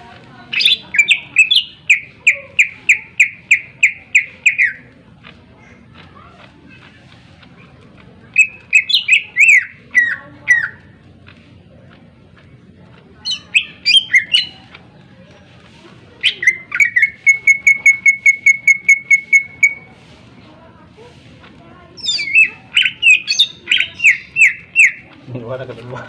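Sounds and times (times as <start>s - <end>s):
bird singing whistled phrases: 0.5s - 4.9s, 8.4s - 10.8s, 13.3s - 14.6s, 16.2s - 19.9s, 22.0s - 25.0s.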